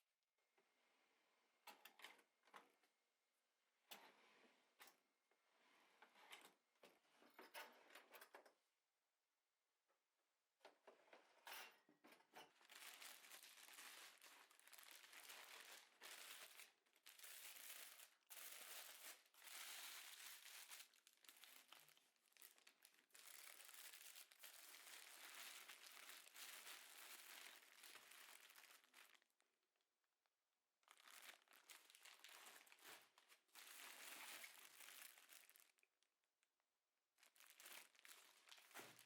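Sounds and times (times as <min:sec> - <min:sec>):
packaging crinkling: 0:12.5 - 0:29.4, 0:30.9 - 0:35.9, 0:37.2 - 0:39.0.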